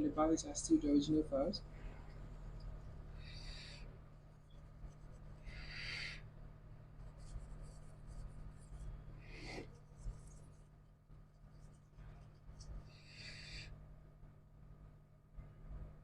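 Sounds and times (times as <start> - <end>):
low electrical hum: 0.0 - 16.0
scratchy rubbing strokes: 7.0 - 10.7.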